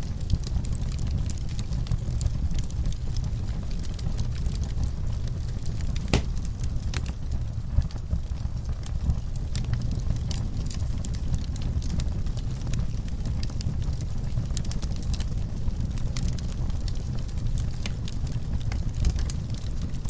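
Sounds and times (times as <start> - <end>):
fire crackling and popping: 0.0 - 20.0.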